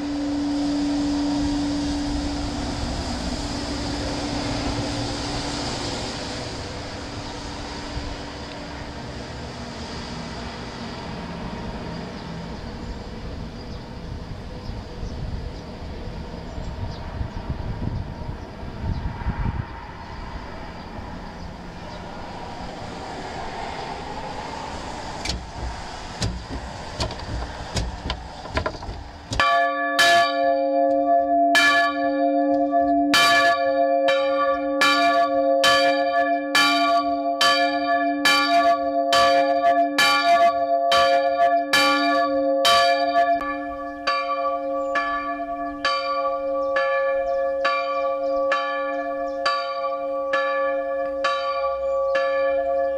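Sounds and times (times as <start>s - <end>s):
church bell ringing: 0.0s - 9.1s, 29.3s - 52.9s
low rumbling noise: 0.0s - 35.8s
faint taps: 25.2s - 29.5s.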